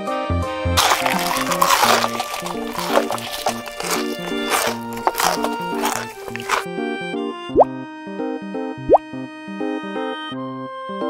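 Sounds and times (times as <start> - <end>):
cartoon crunching chews: 0.8 - 6.7.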